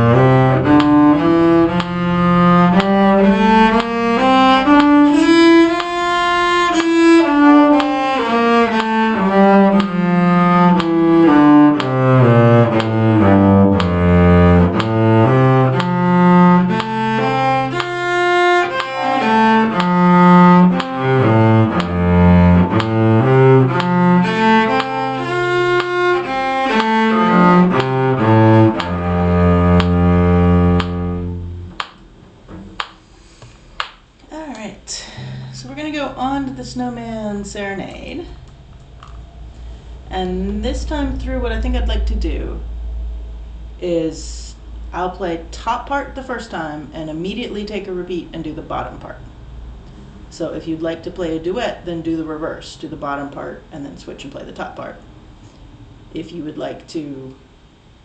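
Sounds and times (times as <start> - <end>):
bowed strings playing a scale: 0.0 - 33.2, 35.1 - 37.5
metronome clicks: 0.1 - 32.0.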